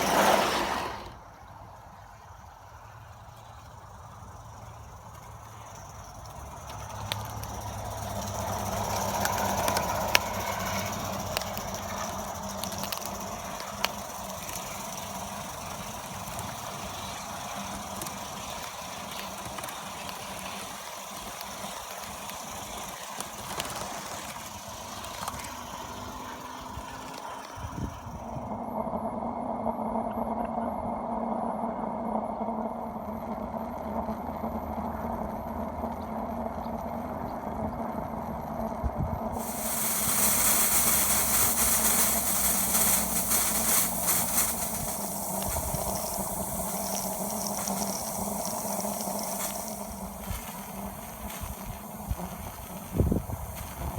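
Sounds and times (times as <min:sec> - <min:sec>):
steam locomotive running: 0:00.0 - 0:28.8, 0:31.4 - 0:53.9
faint high whine: 0:00.0 - 0:53.9.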